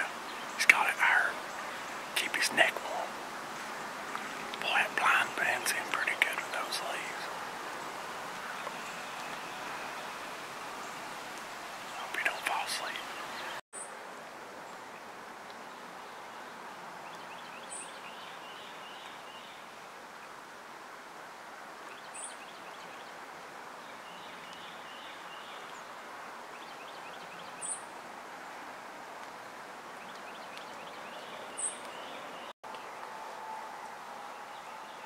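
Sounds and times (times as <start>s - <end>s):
small birds twittering: 0.0s - 13.9s, 23.8s - 27.9s, 30.0s - 33.1s
steady background hiss: 0.0s - 35.0s.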